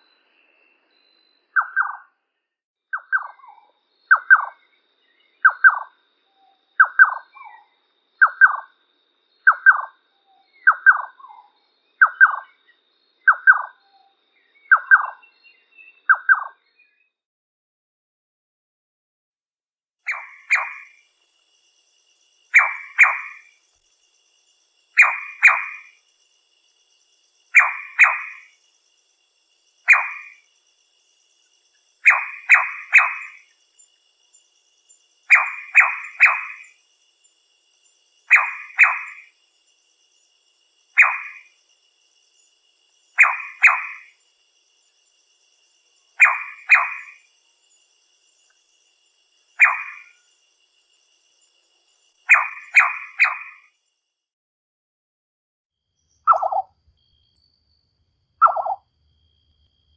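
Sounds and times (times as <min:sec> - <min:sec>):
nightjar calling: 0:01.0 - 0:02.2, 0:02.9 - 0:08.7, 0:09.4 - 0:17.1, 0:20.0 - 0:21.1, 0:22.4 - 0:23.6, 0:24.9 - 0:26.1, 0:27.5 - 0:29.0, 0:29.6 - 0:30.6, 0:31.4 - 0:39.4, 0:40.1 - 0:41.6, 0:42.4 - 0:44.2, 0:44.8 - 0:48.6, 0:49.4 - 0:50.4, 0:51.4 - 0:53.8, 0:56.0 - 0:56.7, 0:58.4 - 0:58.8.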